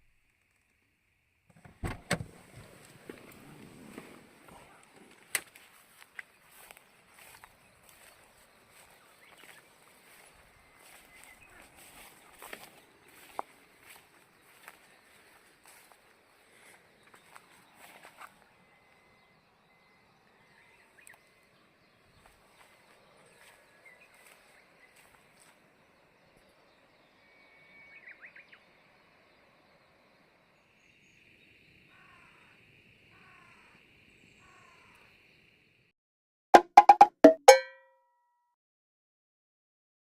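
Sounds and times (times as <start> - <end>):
faint bird chirps: 5.6 - 35.5.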